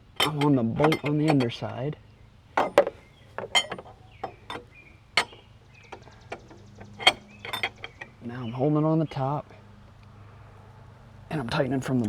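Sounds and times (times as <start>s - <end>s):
wrench clinking against metal: 0.0s - 1.8s, 2.6s - 8.2s.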